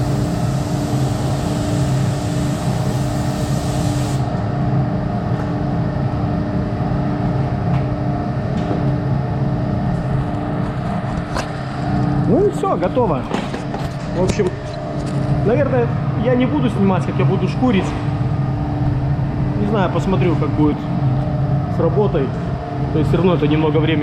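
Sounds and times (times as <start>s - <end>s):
spray gun hissing: 0.0s - 4.3s
ventilation fans humming: 0.0s - 24.0s.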